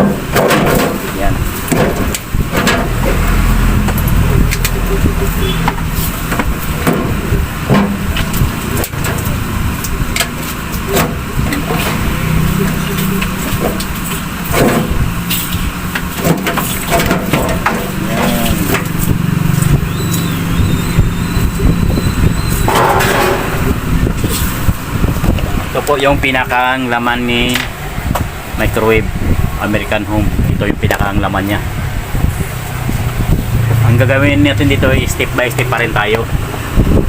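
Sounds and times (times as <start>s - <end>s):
steady low hum: 0.0s - 37.0s
metal clicks and knocks: 5.6s - 19.1s
metal scrape: 22.5s - 24.8s.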